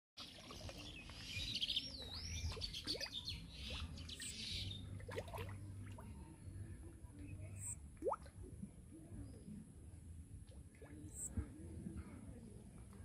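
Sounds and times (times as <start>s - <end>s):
birds chirping and calling: 0.3s - 4.9s
low steady hum: 1.4s - 13.0s.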